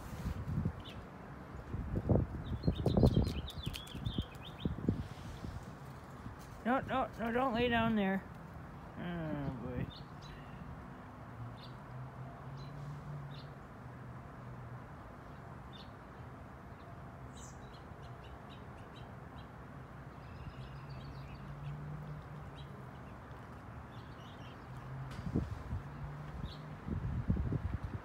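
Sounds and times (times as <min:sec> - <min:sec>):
outdoor background noise: 0:00.0 - 0:28.0
wild birds chirping: 0:02.1 - 0:05.6, 0:08.7 - 0:13.8, 0:15.2 - 0:26.9.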